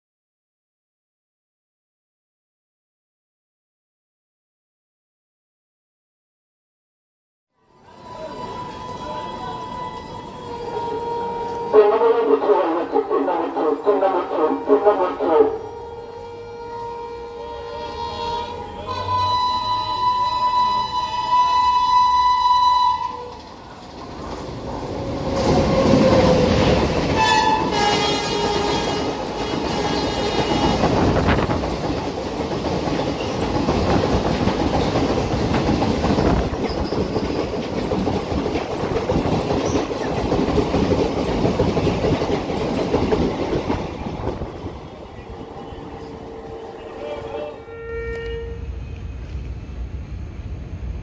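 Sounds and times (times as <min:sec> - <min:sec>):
train horn: 0:07.6 - 0:23.5, 0:25.4 - 0:31.5, 0:45.6 - 0:49.0
wheels clacking over rail joints: 0:23.2 - 0:44.6.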